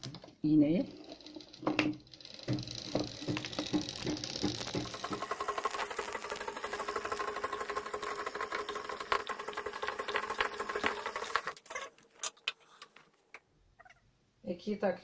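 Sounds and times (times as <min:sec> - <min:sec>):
sewing machine running fast: 0:00.8 - 0:11.6.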